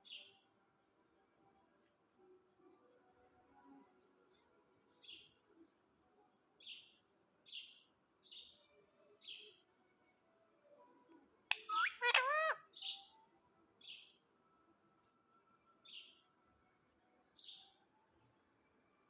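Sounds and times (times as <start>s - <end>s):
parrot chirping: 11.5s - 13.0s.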